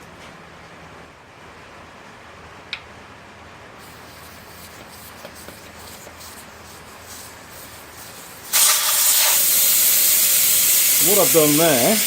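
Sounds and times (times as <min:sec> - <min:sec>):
air hissing from tyre valve: 0:03.8 - 0:12.0.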